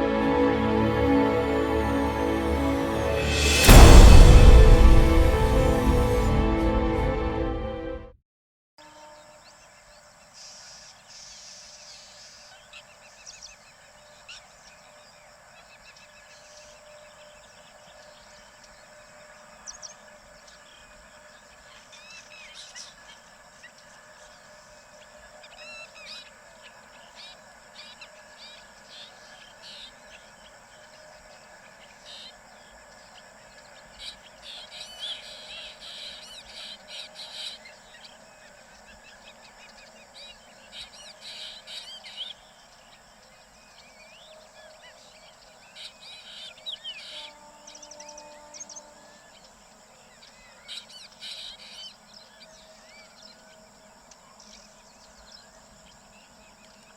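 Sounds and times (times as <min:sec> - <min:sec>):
faint background hum: 0:10.4 - 0:56.9.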